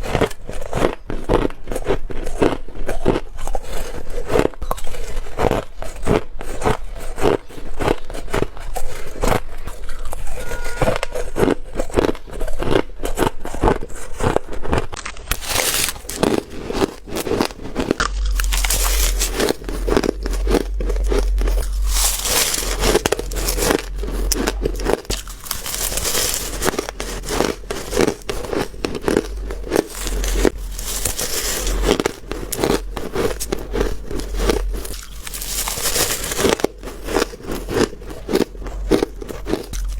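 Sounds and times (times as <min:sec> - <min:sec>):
ice crunching: 0:14.6 - 0:39.9.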